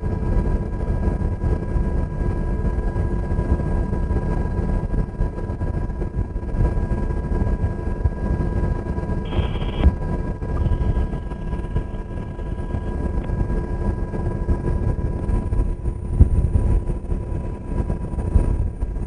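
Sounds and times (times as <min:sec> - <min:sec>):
helicopter rotor rumble: 0:00.0 - 0:19.0
whining tones: 0:09.3 - 0:13.4.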